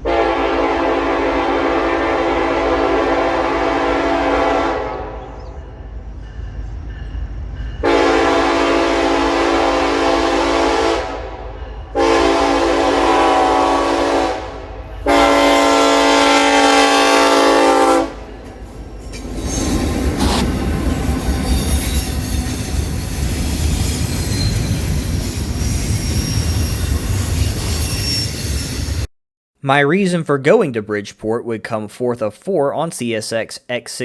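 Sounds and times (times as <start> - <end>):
locomotive air horn blasts: 0.0 - 5.2, 7.8 - 18.2.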